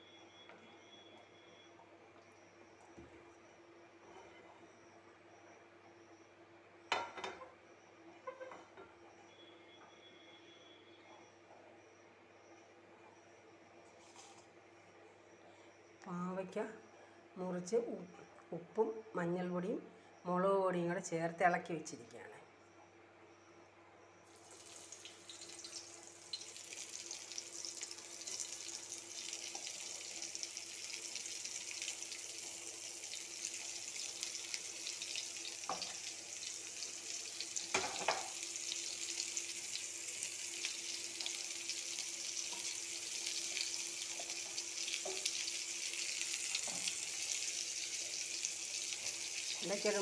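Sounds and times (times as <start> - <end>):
vegetables sizzling in hot oil: 24.3 - 50.0.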